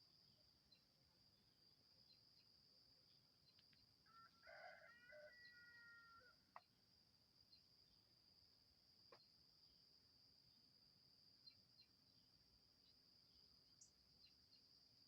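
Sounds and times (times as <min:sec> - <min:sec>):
high insect trill: 0:00.0 - 0:06.6
faint drawn-out bird call: 0:03.6 - 0:06.4.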